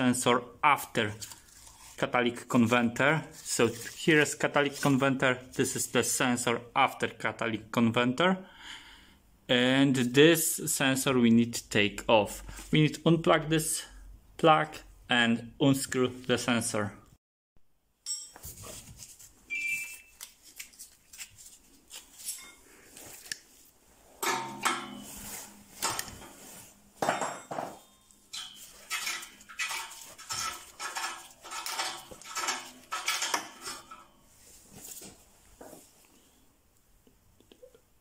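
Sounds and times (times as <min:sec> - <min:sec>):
hand tools clinking on metal pipe: 0:24.2 - 0:26.4, 0:27.0 - 0:34.2.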